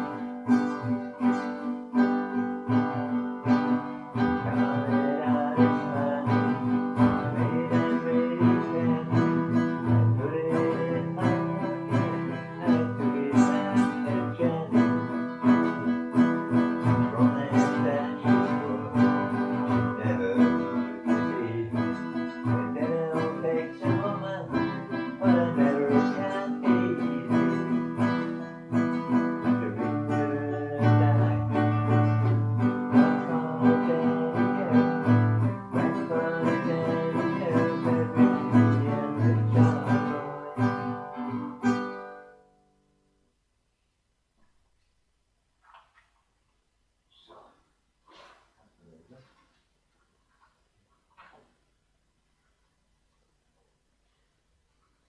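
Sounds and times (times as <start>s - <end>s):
acoustic guitar strumming: 0.0s - 43.2s.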